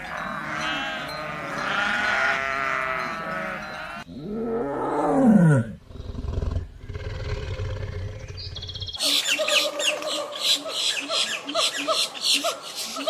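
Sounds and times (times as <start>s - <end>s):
low rumbling growls: 4.1s - 9.0s.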